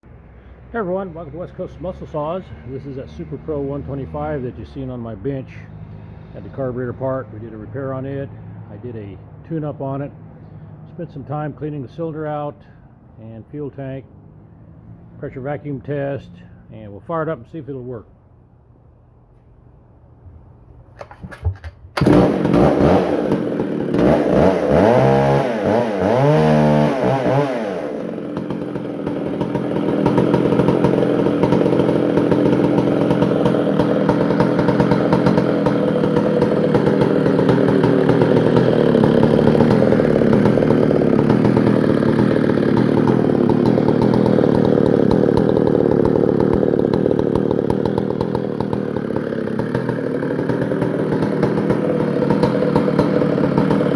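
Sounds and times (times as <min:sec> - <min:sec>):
chainsaw engine revving: 0:21.0 - 0:53.9.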